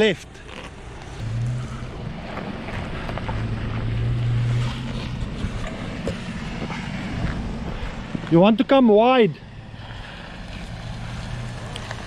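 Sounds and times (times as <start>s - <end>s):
engine running at low revs: 0.7s - 8.4s.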